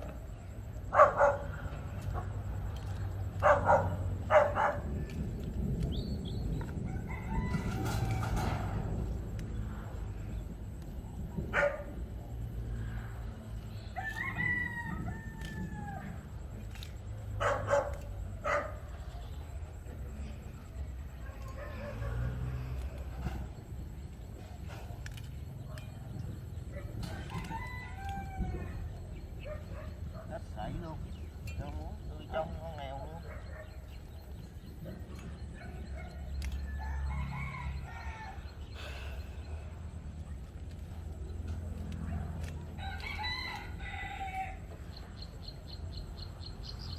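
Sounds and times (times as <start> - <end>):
steady low rumble: 0.0 - 14.0, 14.6 - 42.8
dog barking: 0.9 - 2.4, 3.4 - 4.9, 11.5 - 12.0, 17.4 - 18.9, 21.3 - 22.4, 29.4 - 30.4, 33.2 - 34.0
rooster crowing: 6.9 - 8.8, 14.0 - 16.2, 27.0 - 29.0, 36.4 - 39.0, 42.8 - 44.8.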